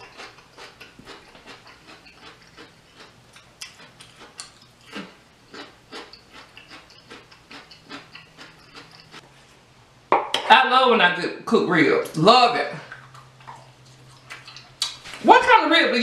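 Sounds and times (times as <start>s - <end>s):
person chewing crunchy vegetable: 0.0s - 9.2s, 12.9s - 15.2s
lip smacks: 0.2s - 9.2s, 12.9s - 15.2s.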